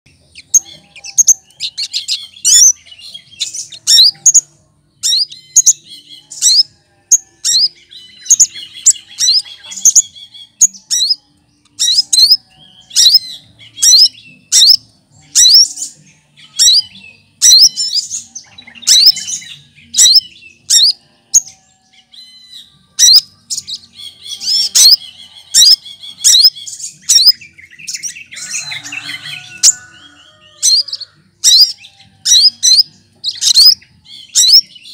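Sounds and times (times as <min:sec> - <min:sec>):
bird singing whistles and chatter: 0:00.1 - 0:34.9.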